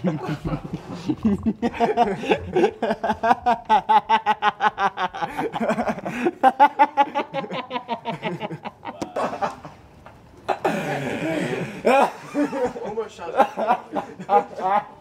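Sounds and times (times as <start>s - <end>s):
person laughing uncontrollably: 0.0s - 9.8s.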